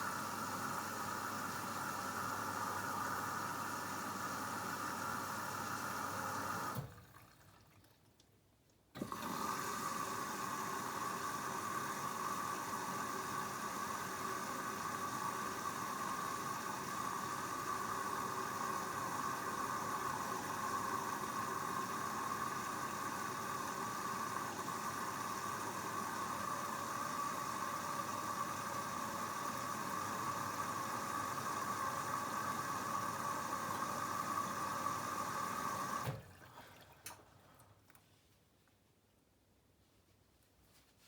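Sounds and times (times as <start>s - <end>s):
washing machine filling with water: 0.0s - 8.2s, 9.0s - 37.8s.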